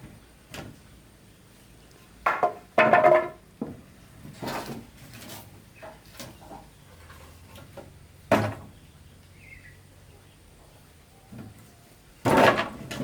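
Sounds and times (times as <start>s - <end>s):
hard objects knocking: 2.2s - 3.8s.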